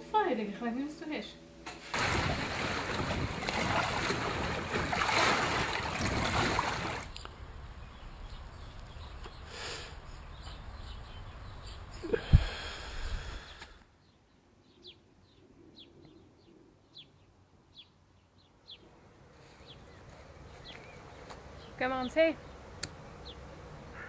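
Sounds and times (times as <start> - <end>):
outdoor background noise: 0.0 - 24.0
bird chirping: 7.1 - 12.1, 13.4 - 18.8.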